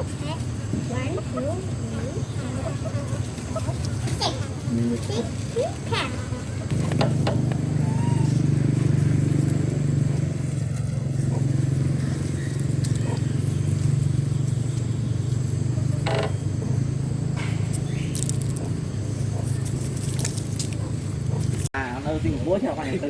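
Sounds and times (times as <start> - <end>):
motorbike engine running: 0.0 - 21.7.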